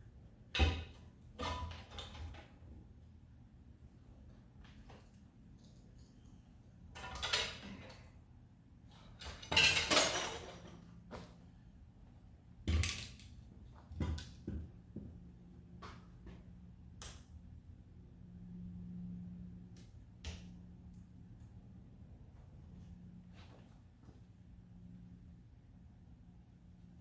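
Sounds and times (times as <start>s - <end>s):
metal tools clanking and scraping: 9.0s - 10.9s.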